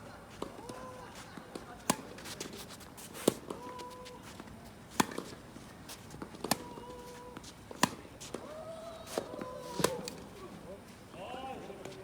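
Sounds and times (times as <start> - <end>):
racket hitting tennis ball: 4.9 - 5.4, 6.2 - 7.1, 7.7 - 8.5.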